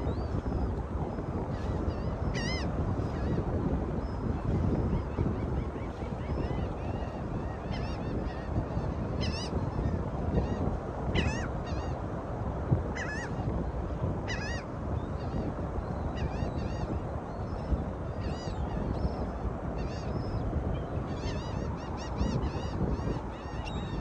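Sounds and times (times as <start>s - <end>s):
birds squawking: 9.2s - 9.6s, 11.2s - 12.0s, 13.0s - 13.3s.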